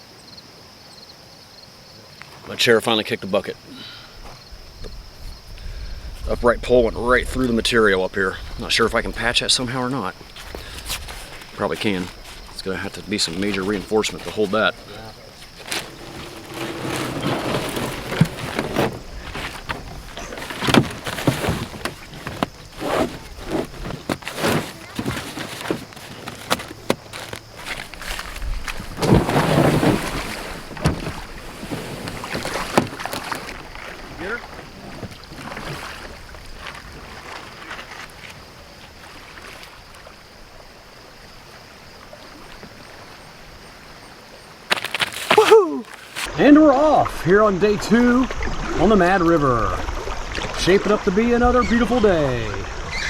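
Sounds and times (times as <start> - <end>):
water splashing: 7.2 - 44.0, 44.7 - 53.0
paddle knocking against hull: 10.2 - 38.0.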